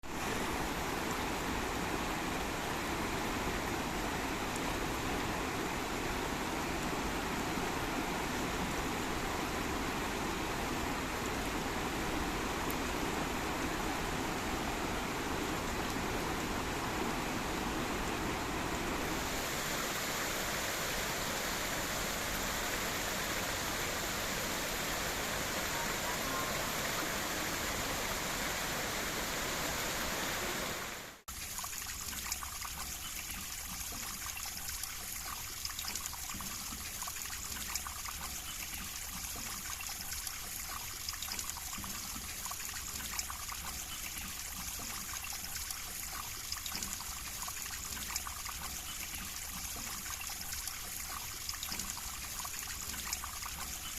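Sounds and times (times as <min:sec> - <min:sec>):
river rushing over rocks: 0:00.4 - 0:31.2
babbling water trickle: 0:25.3 - 0:28.2, 0:31.3 - 0:53.9.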